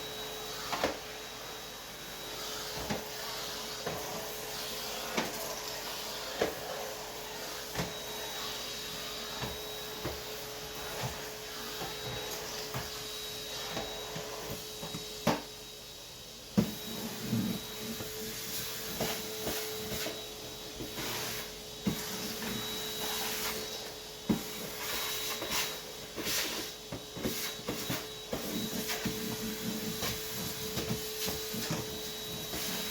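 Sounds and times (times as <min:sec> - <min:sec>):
vacuum cleaner motor humming: 0:00.0 - 0:32.9.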